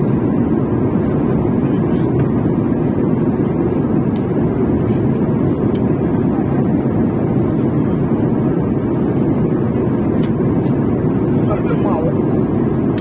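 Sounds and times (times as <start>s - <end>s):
airliner cabin engine rush: 0.0s - 13.0s.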